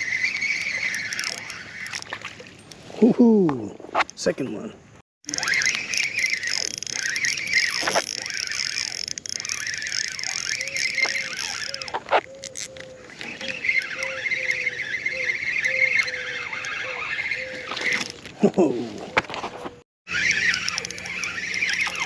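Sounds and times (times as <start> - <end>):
insects buzzing: 5.2 - 18.2, 20.1 - 22.0.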